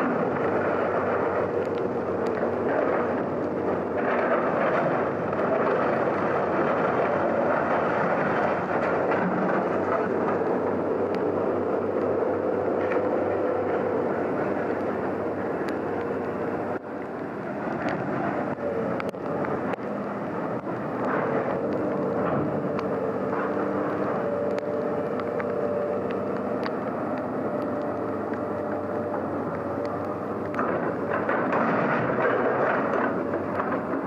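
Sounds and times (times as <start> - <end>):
heavy machine engine running: 0.0 - 34.0
knocks and clanks: 30.5 - 34.0.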